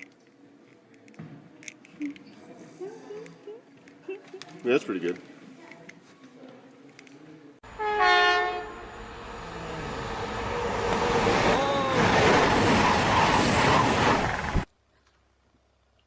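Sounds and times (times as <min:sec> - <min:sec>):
pitched horn-like blast: 0:07.7 - 0:08.9.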